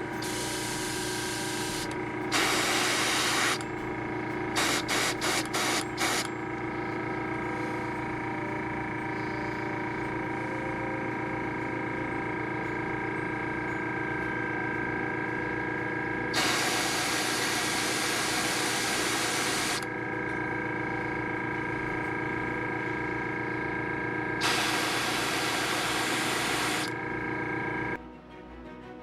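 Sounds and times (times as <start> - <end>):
paint spray hissing: 0.2 - 3.6, 4.6 - 6.3, 24.4 - 26.9
background music: 28.0 - 29.0.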